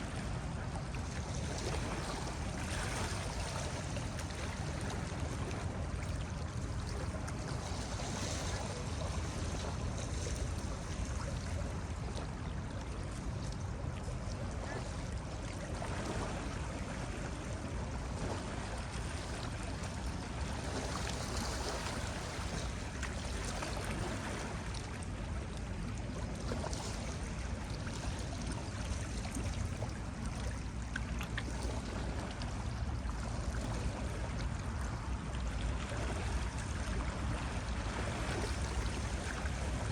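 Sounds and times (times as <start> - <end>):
ocean waves breaking on beach: 35.8 - 39.9.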